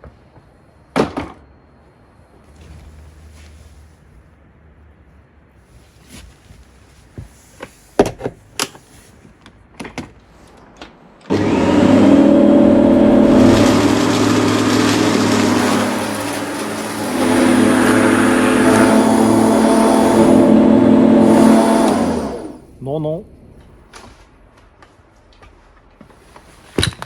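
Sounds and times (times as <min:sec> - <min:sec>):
electric lawnmower motor humming: 0:11.3 - 0:22.7.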